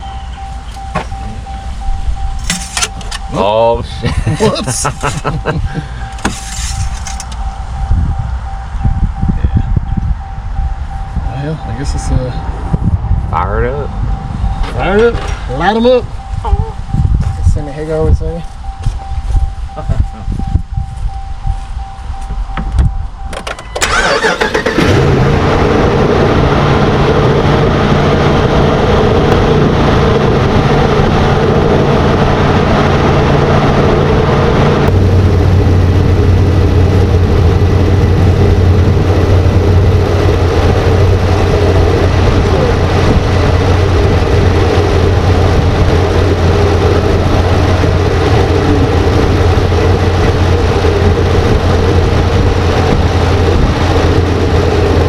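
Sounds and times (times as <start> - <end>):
truck engine starting and idling: 22.4 - 55.0.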